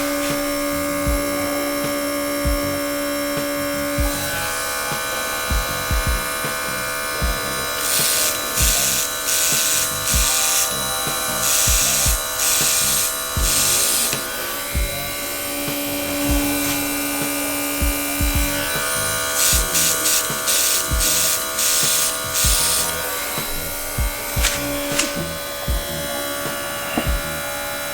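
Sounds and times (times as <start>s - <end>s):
airbrush spray hissing: 0.0s - 27.9s
compressor motor whine: 0.0s - 27.9s
soft bumps: 22.4s - 27.5s.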